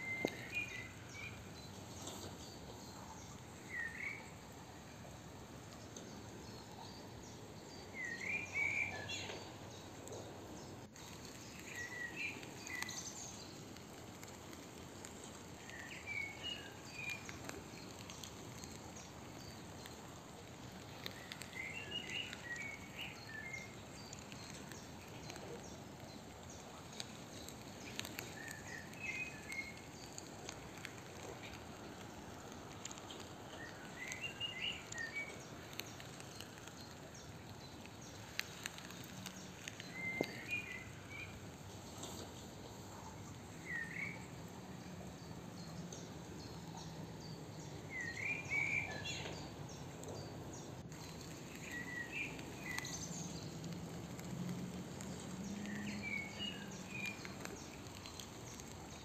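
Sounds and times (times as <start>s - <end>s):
outdoor background hiss: 0.0s - 59.0s
songbird singing: 0.0s - 59.0s.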